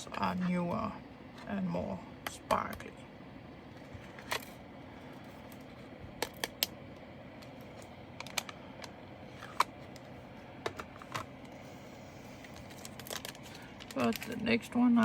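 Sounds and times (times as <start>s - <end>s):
packaging being handled: 7.4s - 14.7s.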